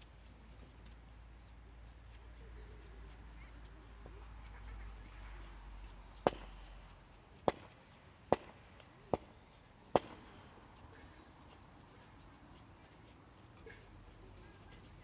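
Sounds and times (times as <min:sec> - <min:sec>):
sharp chopping knocks: 0:06.2 - 0:06.6, 0:07.4 - 0:09.3, 0:09.9 - 0:10.3.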